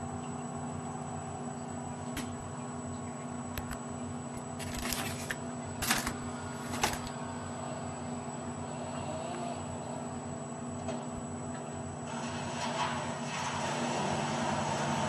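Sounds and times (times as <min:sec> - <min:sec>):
engine hum: 0:04.5 - 0:15.0.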